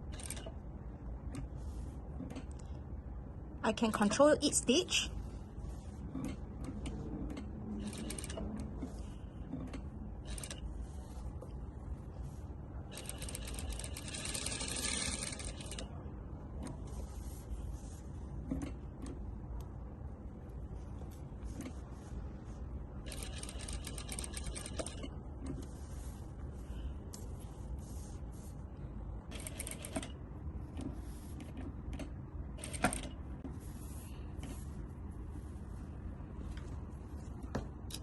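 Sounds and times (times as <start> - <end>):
steady low hum: 0.0 - 38.0
sewing machine stitching: 0.1 - 0.5, 7.3 - 9.0, 9.6 - 10.6, 12.9 - 15.9, 23.0 - 25.1, 29.3 - 30.2.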